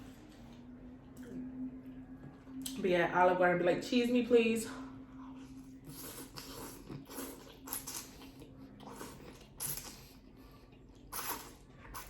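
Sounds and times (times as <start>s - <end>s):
person chewing food: 5.2s - 12.0s.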